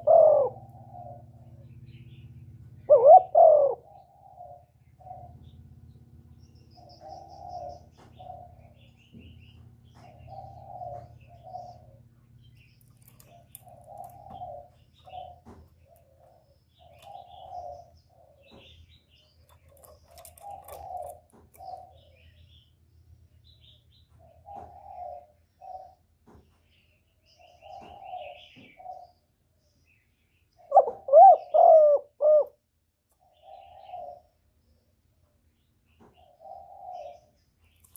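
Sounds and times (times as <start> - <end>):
dove cooing: 0.0 - 5.7, 6.7 - 12.1, 12.9 - 22.4, 23.5 - 26.1, 27.3 - 29.3, 30.6 - 32.6, 33.2 - 34.8, 36.0 - 37.4
small birds chirping: 0.0 - 37.9.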